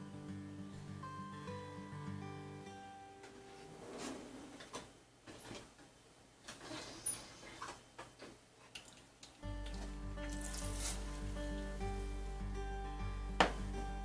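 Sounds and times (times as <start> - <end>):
soft hiss: 2.8 - 14.0
background music with deep bass: 9.4 - 14.0.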